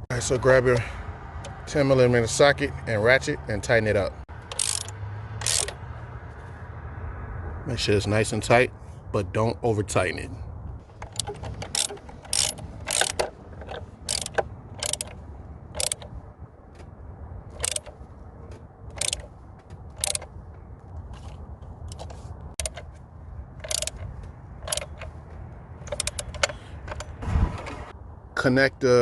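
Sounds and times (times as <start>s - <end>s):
hand ratchet clicking: 4.4s - 5.8s, 10.8s - 15.2s, 15.8s - 16.1s, 17.6s - 17.9s, 18.9s - 19.3s, 19.9s - 20.3s, 21.9s - 22.9s, 23.6s - 25.2s, 25.8s - 27.2s.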